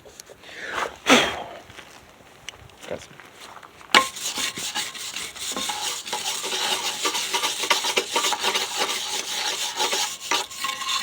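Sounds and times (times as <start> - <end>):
wire brush scrubbing steel: 4.0 - 11.0.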